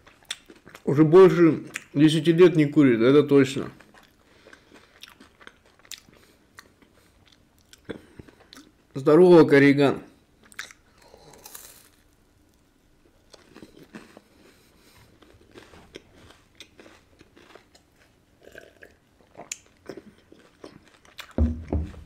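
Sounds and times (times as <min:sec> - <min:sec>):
person chewing crunchy bar: 0:00.0 - 0:00.9, 0:03.7 - 0:08.8, 0:10.4 - 0:12.2, 0:13.2 - 0:22.0.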